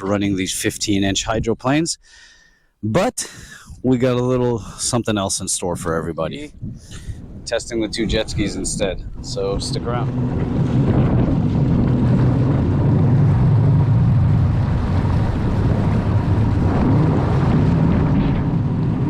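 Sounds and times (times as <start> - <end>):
wind buffeting microphone: 0.0 - 1.8, 3.4 - 19.0
jet ski engine running: 7.8 - 19.0.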